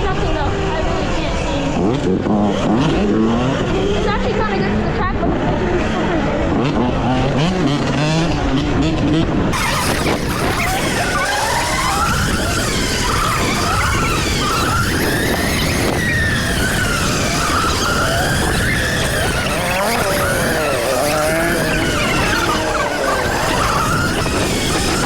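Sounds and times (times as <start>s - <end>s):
wind rumble on microphone: 0.0s - 25.0s
electric motorbike motor whining: 5.5s - 25.0s.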